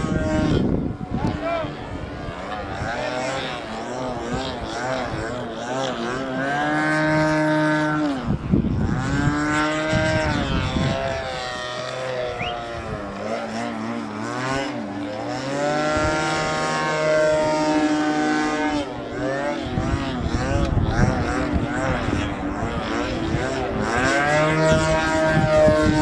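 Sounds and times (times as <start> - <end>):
model aeroplane engine: 0.0 - 26.0.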